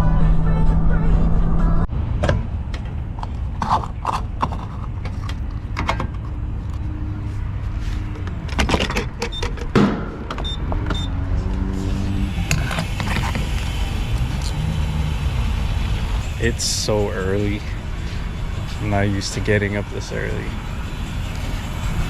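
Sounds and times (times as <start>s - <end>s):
road and engine rumble: 0.0s - 22.0s.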